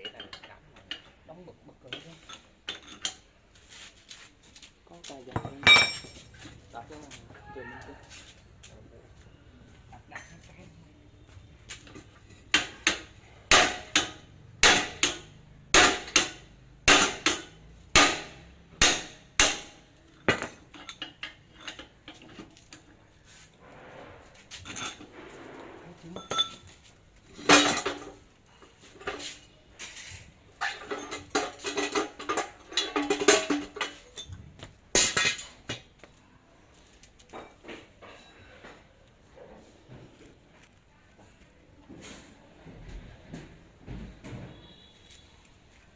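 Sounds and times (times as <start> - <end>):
light metal knocks and clinks: 5.2 - 7.0, 26.1 - 29.3, 30.6 - 35.9.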